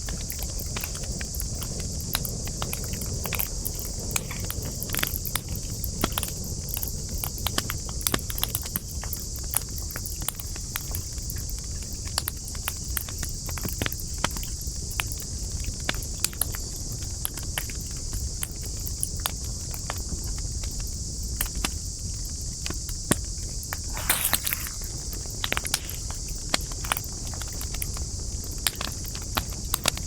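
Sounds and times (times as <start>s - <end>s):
campfire crackling: 23.8s - 26.1s
high-pitched hiss: 23.8s - 26.2s.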